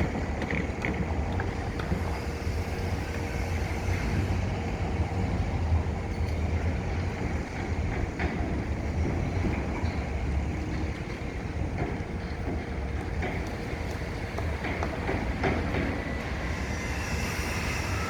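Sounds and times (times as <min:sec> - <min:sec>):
faint clicks and knocks: 0:00.0 - 0:02.0
construction machinery rumble: 0:00.0 - 0:18.0
distant city traffic: 0:00.0 - 0:18.0.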